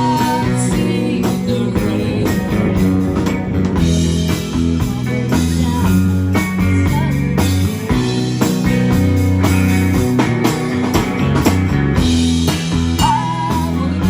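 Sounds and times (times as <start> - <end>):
bass and drums: 0.0 - 14.0
electric guitar: 0.0 - 14.0.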